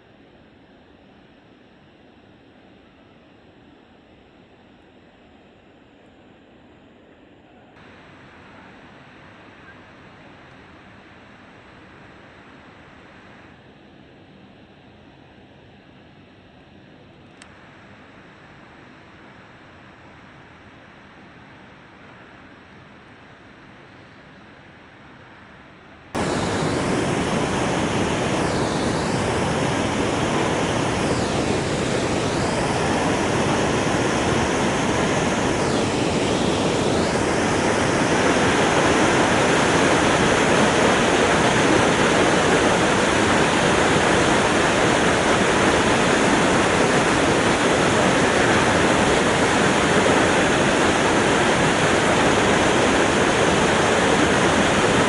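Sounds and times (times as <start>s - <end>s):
waterfall rushing: 26.2s - 55.0s.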